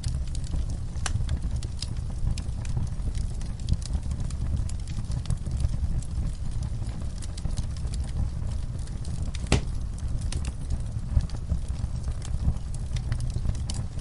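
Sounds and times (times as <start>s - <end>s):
wood fire crackling: 0.0s - 14.0s
loud pop of fire: 9.3s - 10.5s.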